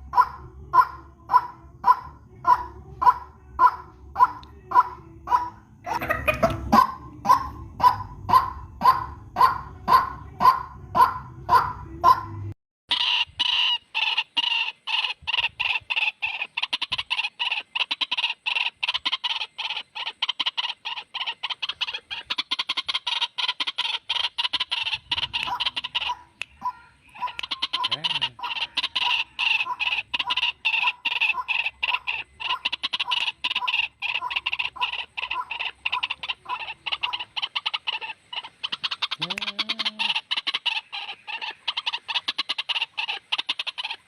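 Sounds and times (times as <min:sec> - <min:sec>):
waterhen calls: 0:00.0 - 0:44.0.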